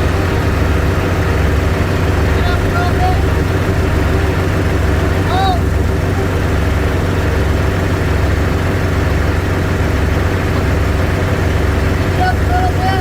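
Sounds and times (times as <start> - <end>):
heavy engine idling: 0.0 - 13.0.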